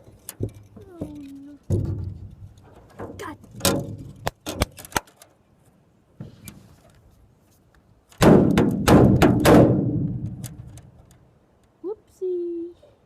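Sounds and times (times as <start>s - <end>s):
loud thumps: 0.4s - 4.8s, 8.2s - 10.8s.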